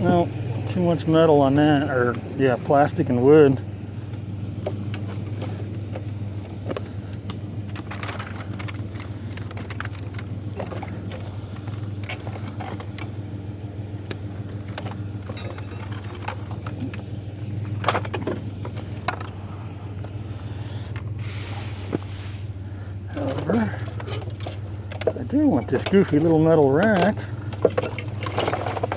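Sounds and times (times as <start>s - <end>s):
junk clicking and rattling: 0.0s - 28.9s
truck engine idling: 0.0s - 28.9s.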